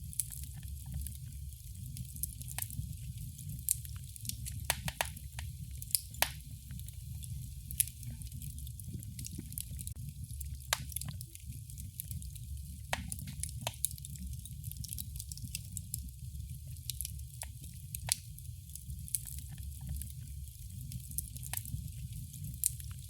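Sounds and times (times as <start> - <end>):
sharp fire pops: 0.0 - 16.1
wood fire rumbling and crackling: 0.0 - 23.0.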